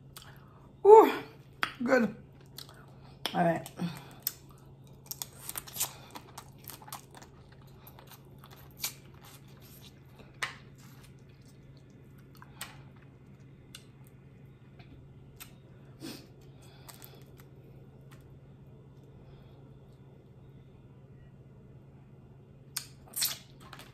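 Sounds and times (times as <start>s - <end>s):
steady low hum: 0.0s - 23.9s
person chewing food: 2.3s - 3.3s, 3.9s - 18.4s.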